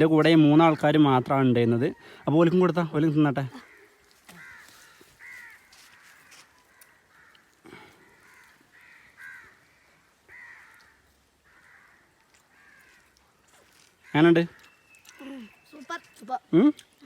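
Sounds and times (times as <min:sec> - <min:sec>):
crows cawing: 0:01.9 - 0:02.4, 0:03.4 - 0:16.1.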